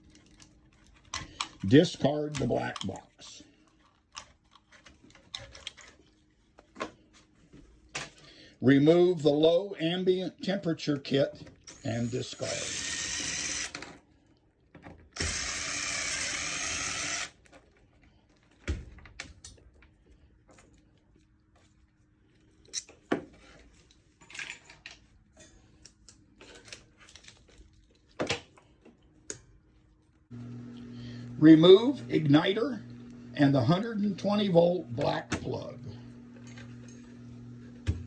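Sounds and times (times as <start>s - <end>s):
cordless screw gun running: 11.7s - 13.8s, 15.2s - 17.4s.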